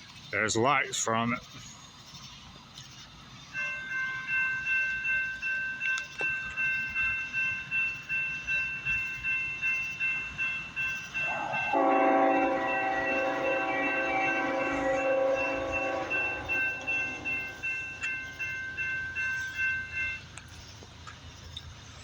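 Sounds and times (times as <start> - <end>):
railroad crossing bell ringing: 2.8 - 22.0
locomotive air horn: 11.2 - 18.0.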